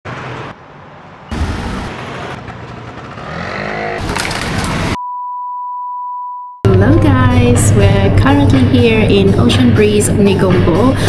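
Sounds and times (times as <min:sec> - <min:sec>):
street traffic noise: 0:00.0 - 0:05.0.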